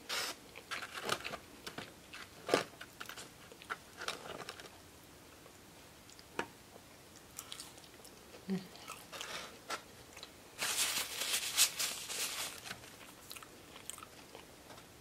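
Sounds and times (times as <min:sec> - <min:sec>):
crunchy chewing: 0:12.9 - 0:14.5.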